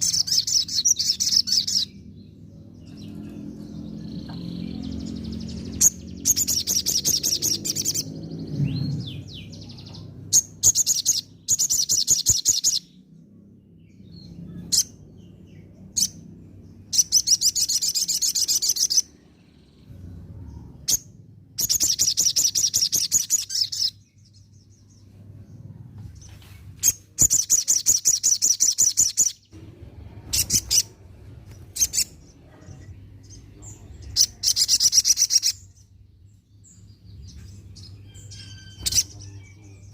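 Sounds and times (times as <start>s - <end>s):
bird twittering trills: 0.0s - 13.0s, 13.8s - 29.6s, 30.2s - 39.9s
sharp bird chirps: 0.0s - 13.0s, 16.9s - 19.9s, 20.7s - 24.9s, 26.8s - 29.6s, 31.7s - 32.4s, 33.2s - 36.1s, 36.7s - 39.9s.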